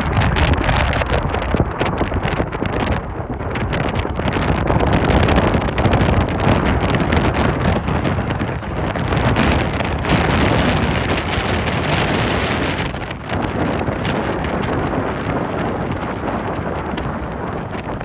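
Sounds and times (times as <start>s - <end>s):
wind buffeting the microphone: 0.0s - 18.0s.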